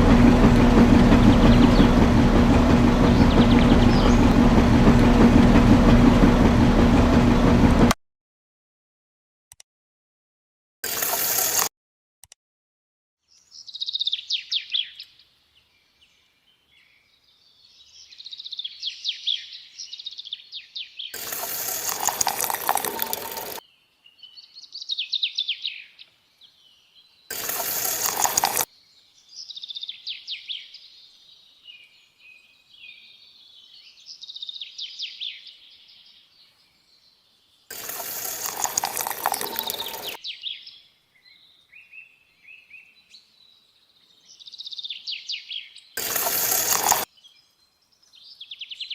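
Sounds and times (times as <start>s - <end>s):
birds chirping and singing: 0.0s - 4.8s, 13.3s - 48.9s
loud rushing bursts: 0.0s - 8.0s.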